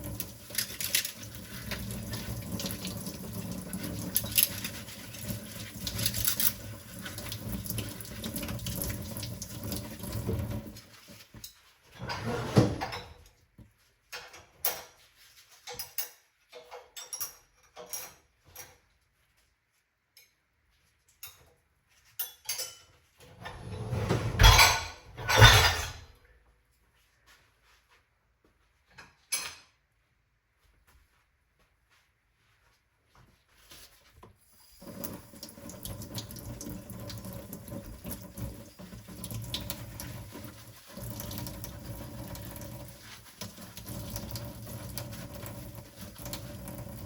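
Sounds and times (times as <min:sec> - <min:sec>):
dishes and cutlery clinking: 0:00.4 - 0:02.8, 0:04.0 - 0:07.2, 0:14.0 - 0:18.9, 0:21.1 - 0:23.2, 0:24.3 - 0:26.2, 0:29.0 - 0:29.8
tap running into sink: 0:34.8 - 0:47.0.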